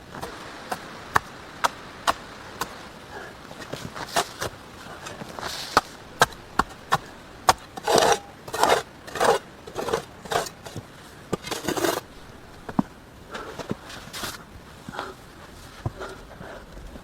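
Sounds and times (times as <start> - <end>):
rough scraping on wood: 3.6 - 15.1.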